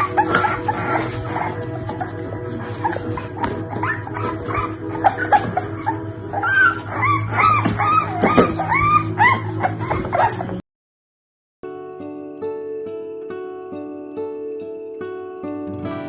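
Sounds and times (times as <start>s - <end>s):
background music: 0.0s - 10.6s, 11.7s - 16.0s
puppies whimpering and yipping: 0.0s - 10.6s
music with jingling bells: 11.6s - 16.0s.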